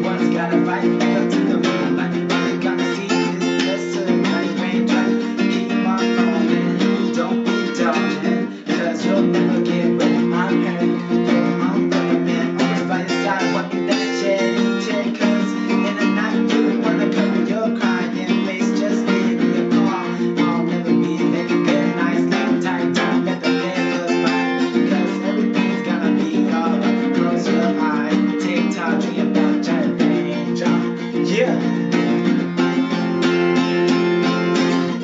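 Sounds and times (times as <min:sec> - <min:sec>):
acoustic guitar music: 0:00.0 - 0:35.0.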